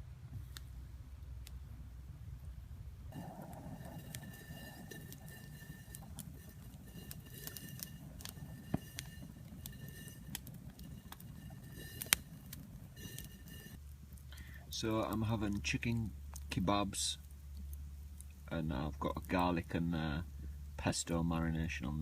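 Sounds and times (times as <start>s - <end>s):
low outdoor rumble: 0.0s - 22.0s
campfire crackling and popping: 0.3s - 22.0s.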